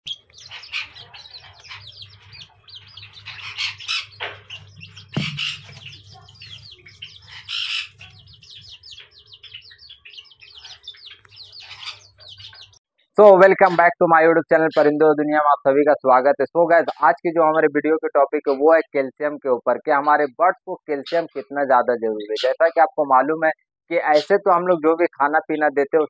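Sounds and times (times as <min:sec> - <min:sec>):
cage birds chirping: 0:00.0 - 0:13.9, 0:20.9 - 0:22.9.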